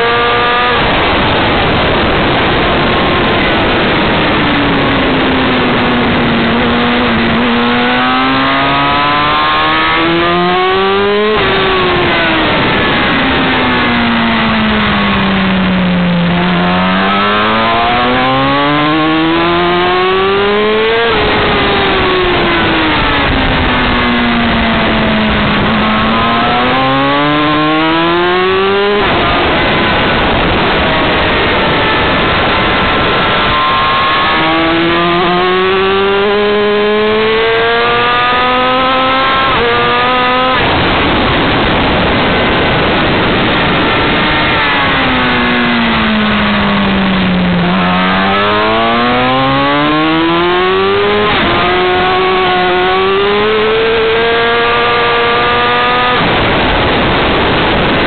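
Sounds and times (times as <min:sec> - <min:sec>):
motorcycle engine at speed: 0:00.0 - 0:58.0
wind rush: 0:00.0 - 0:58.0.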